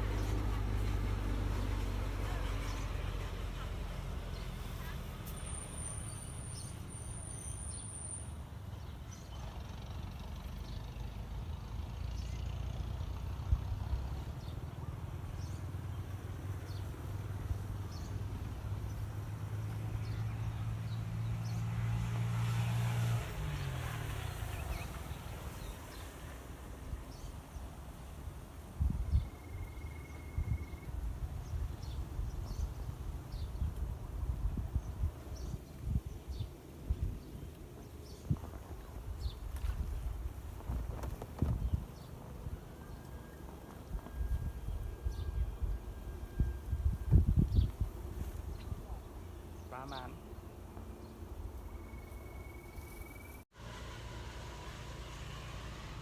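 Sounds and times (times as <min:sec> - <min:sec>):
distant road traffic rumble: 0:00.0 - 0:56.0.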